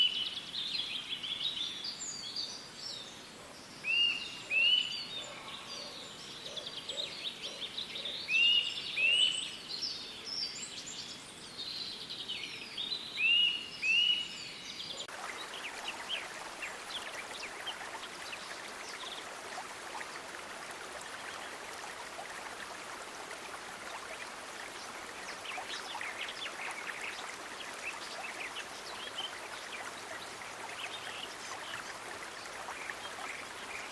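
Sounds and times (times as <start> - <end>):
songbirds chirping: 0.0 - 33.9
running water: 15.0 - 33.9.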